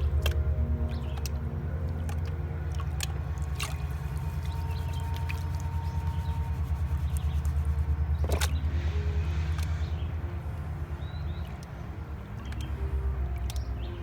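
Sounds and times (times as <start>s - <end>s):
water sloshing in pan: 0.0s - 10.0s
steady low rumble: 0.0s - 14.0s.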